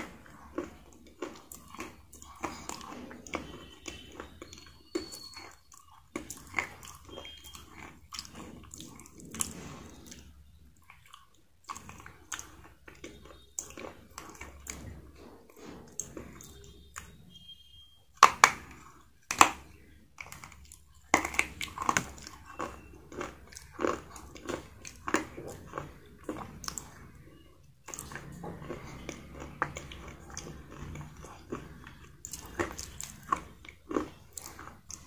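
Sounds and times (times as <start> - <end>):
chewing crispy fried chicken: 0.0 - 35.0
crunchy bites: 18.2 - 27.1.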